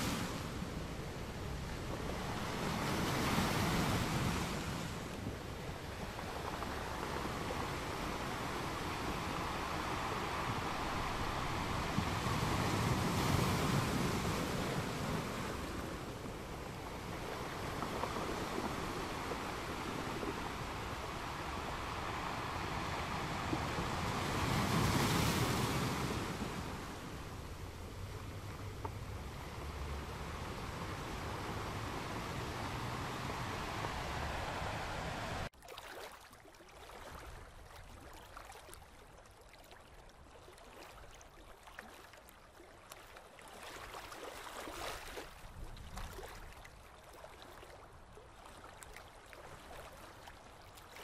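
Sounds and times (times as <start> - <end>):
wind on microphone: 0.0 - 35.5, 44.8 - 46.9.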